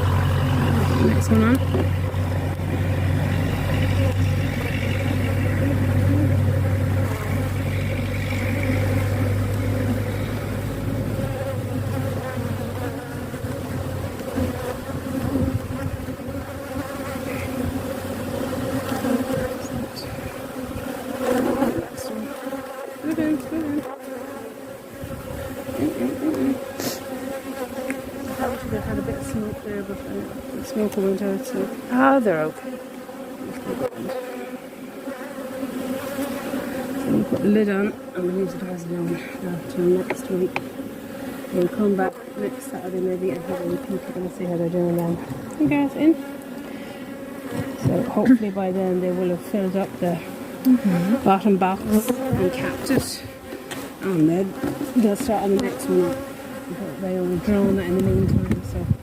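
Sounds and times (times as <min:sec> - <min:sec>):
low steady hum: 0:00.0 - 0:15.1
honeybees buzzing: 0:00.0 - 0:59.0.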